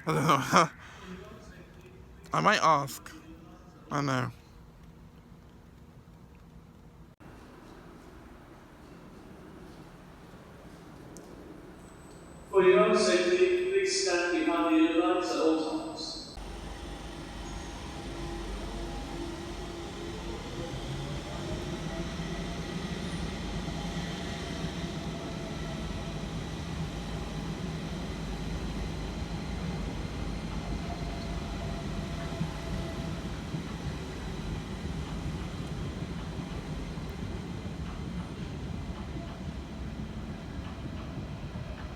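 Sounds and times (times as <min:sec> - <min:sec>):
underground train rumble: 0:00.0 - 0:41.9
train motor whine: 0:07.2 - 0:13.7, 0:16.4 - 0:41.9.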